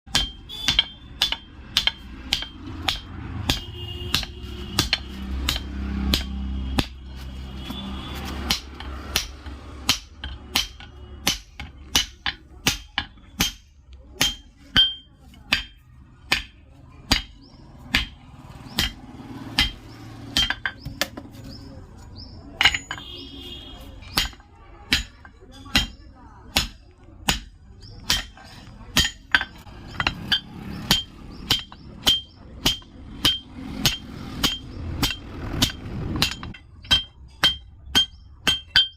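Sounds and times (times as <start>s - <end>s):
hammer ringing on anvil: 0.1s - 6.9s, 22.6s - 23.3s, 29.0s - 38.9s.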